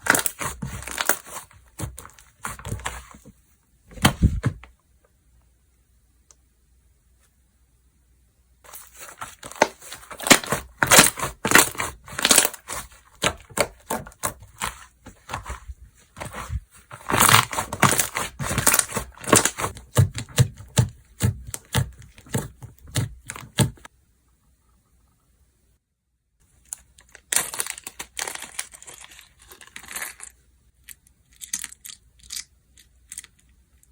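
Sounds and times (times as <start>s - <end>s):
hands squishing sticky slime: 9.0s - 23.8s.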